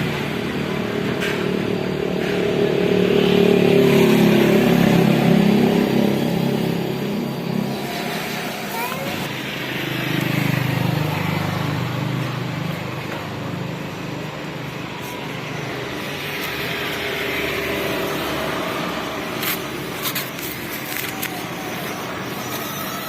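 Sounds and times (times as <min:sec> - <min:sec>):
toy truck motor running: 0:06.6 - 0:13.2, 0:14.4 - 0:23.0.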